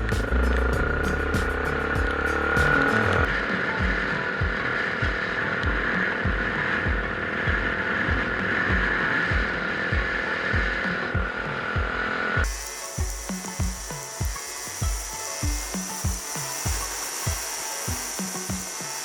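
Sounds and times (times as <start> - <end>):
low engine thumps: 0.0 - 12.5
motorcycle engine: 0.0 - 14.4.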